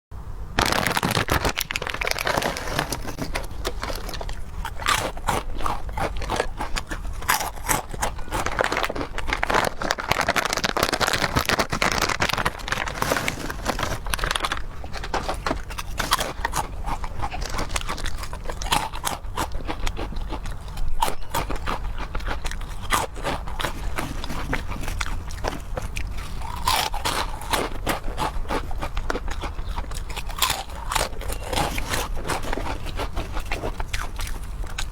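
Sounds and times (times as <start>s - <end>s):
person chewing and biting food: 0.6s - 34.9s.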